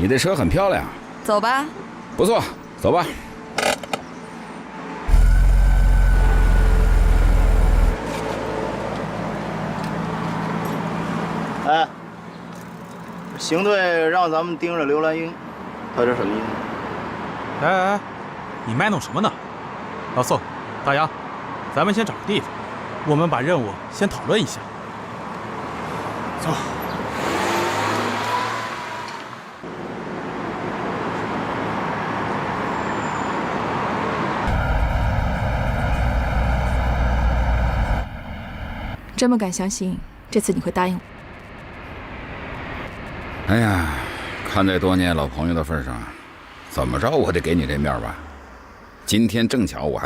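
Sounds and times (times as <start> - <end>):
traffic hum: 0.0 - 13.5, 33.6 - 49.2
car engine rumble: 5.1 - 8.1, 34.5 - 39.2.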